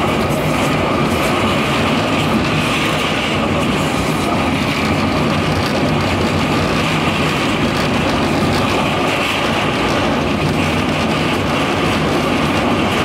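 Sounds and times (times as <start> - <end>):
light-rail train rumbling: 0.0 - 13.0.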